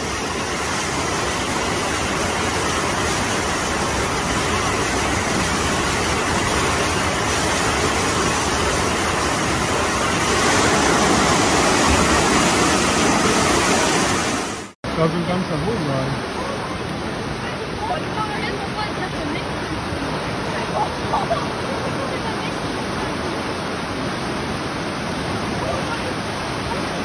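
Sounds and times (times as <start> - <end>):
rushing floodwater: 0.0 - 27.0.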